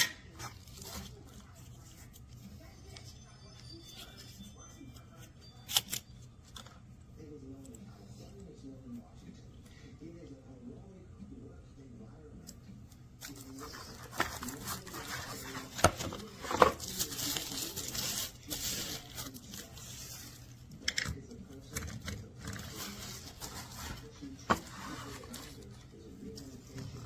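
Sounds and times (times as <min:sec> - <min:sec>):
plastic packaging rustling: 0:13.2 - 0:20.8, 0:21.5 - 0:27.0.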